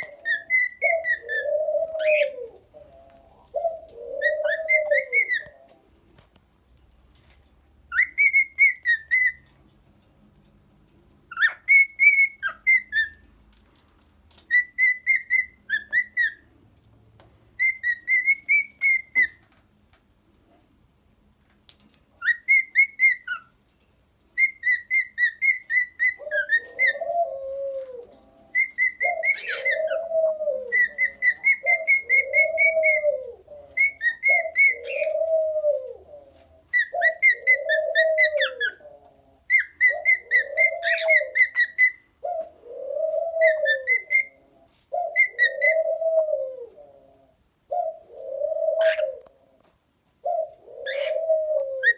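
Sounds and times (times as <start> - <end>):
low cooing call: 0.0 - 5.9, 26.0 - 49.6, 50.2 - 51.9
cockatiel whistling: 17.6 - 19.3, 28.6 - 30.0.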